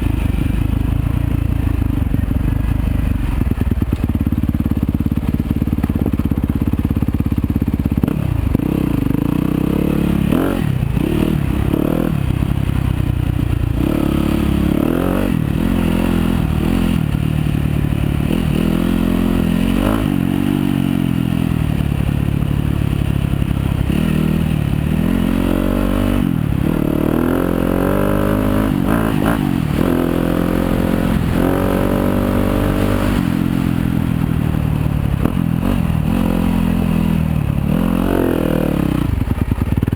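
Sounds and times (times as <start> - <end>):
dirt bike engine revving: 8.0 - 12.2, 13.7 - 17.4, 18.0 - 21.6, 23.8 - 39.7.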